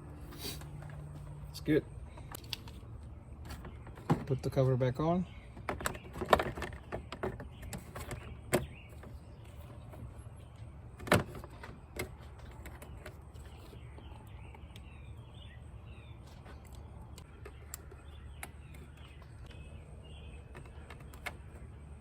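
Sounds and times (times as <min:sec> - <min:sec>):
steady low hum: 0:00.0 - 0:06.1.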